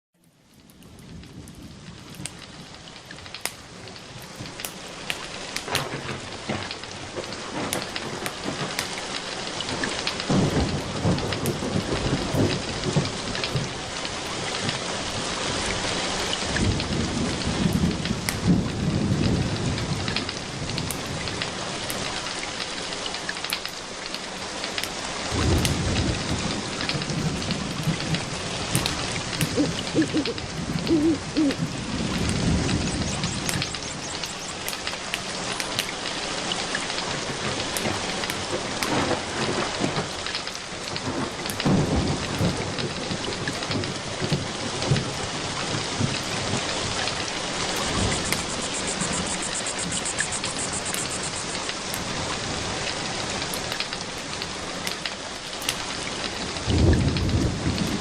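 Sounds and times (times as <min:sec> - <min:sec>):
steady rain falling: 0:00.2 - 0:58.0
low rolling thunder: 0:09.7 - 0:21.8, 0:25.3 - 0:34.9, 0:37.2 - 0:53.4, 0:56.3 - 0:58.0
sharp clicks: 0:33.0 - 0:35.9, 0:47.9 - 0:52.0.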